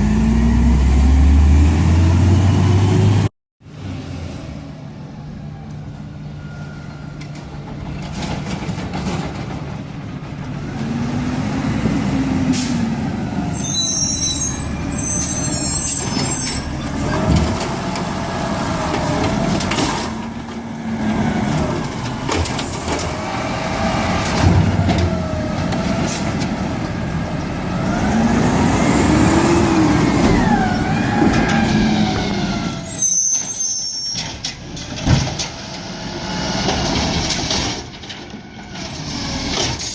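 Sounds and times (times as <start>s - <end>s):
air brakes hissing: 12.5s - 16.7s
garbage truck engine revving: 14.8s - 33.0s.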